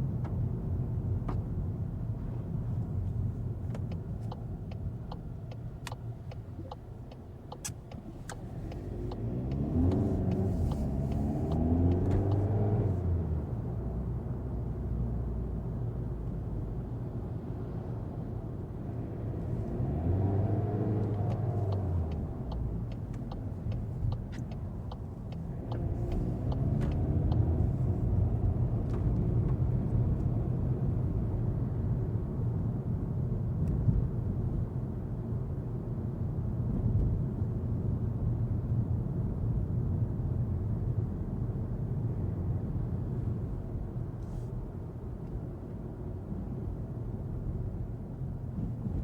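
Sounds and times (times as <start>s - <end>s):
road rumble: 0.0s - 49.0s
car engine accelerating: 6.3s - 14.6s, 19.0s - 30.7s.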